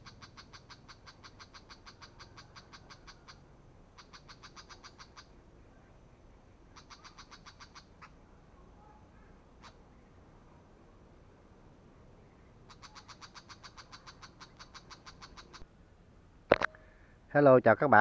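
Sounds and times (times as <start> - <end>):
bird's harsh rattling call: 0.0 - 5.4, 6.7 - 8.2, 9.6 - 9.8, 12.6 - 15.7.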